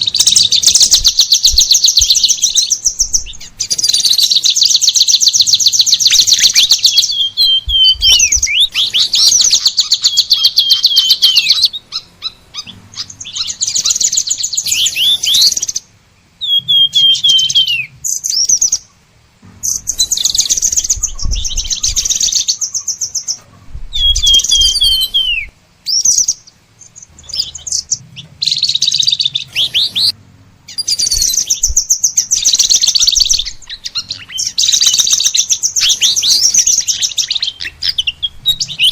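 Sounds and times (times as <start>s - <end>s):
bird chattering trills: 0.0s - 38.9s
bird downward whistled notes: 23.9s - 26.3s.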